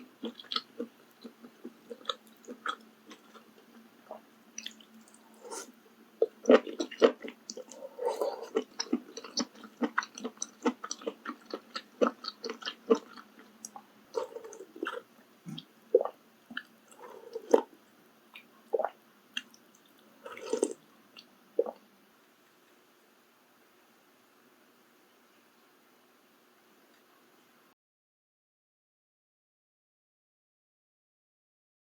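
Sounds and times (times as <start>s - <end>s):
close chewing with mouth clicks: 0.0s - 21.8s.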